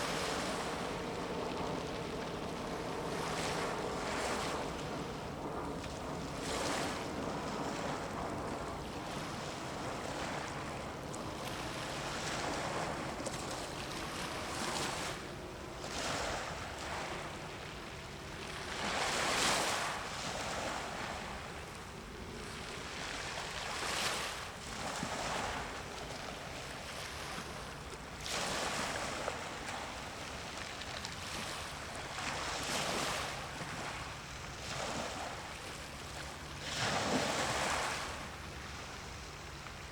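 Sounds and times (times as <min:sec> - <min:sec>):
wind on microphone: 0:00.0 - 0:21.8
sea waves washing: 0:00.0 - 0:26.3.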